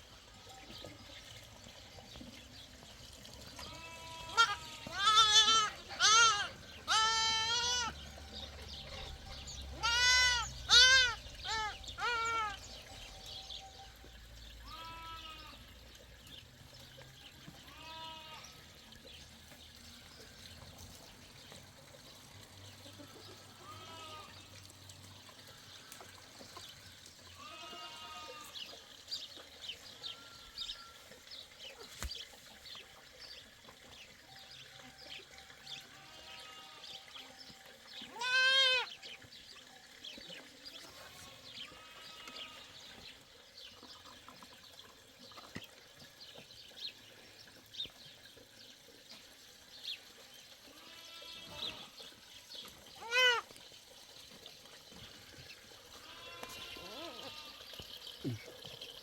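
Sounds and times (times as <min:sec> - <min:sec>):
goats bleating: 0:03.6 - 0:08.0, 0:09.8 - 0:12.6, 0:14.6 - 0:15.6, 0:17.6 - 0:18.6, 0:22.9 - 0:24.4, 0:27.4 - 0:28.7, 0:38.1 - 0:38.9, 0:50.7 - 0:52.0, 0:53.0 - 0:53.5, 0:55.9 - 0:57.7.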